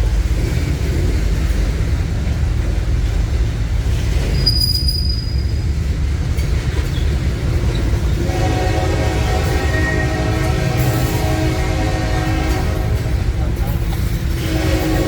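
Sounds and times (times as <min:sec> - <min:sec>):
train wheels rumbling: 0:00.0 - 0:15.0
high-pitched wheel squeal: 0:04.4 - 0:05.6.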